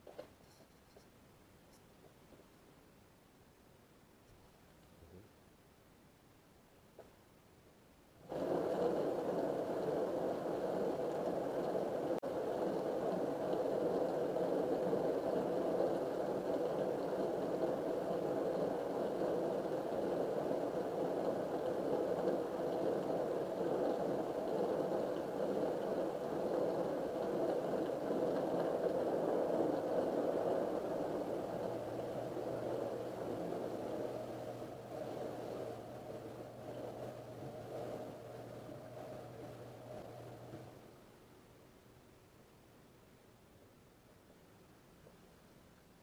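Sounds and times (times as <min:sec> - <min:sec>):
dishwasher pump and water spray: 0:08.2 - 0:40.8.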